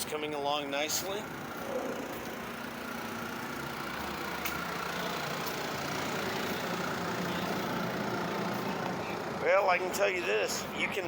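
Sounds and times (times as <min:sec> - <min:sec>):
engine droning: 0:00.4 - 0:11.0.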